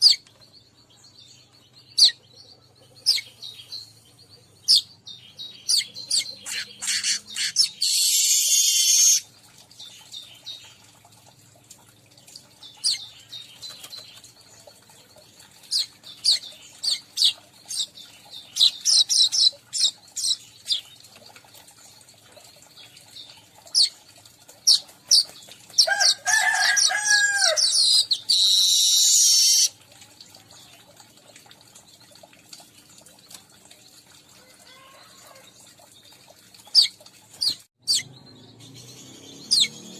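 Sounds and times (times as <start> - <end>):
bird chirping: 0.0 - 9.2, 12.6 - 21.1, 36.1 - 39.9
buzzy bird chatter: 1.5 - 10.9, 12.6 - 29.8.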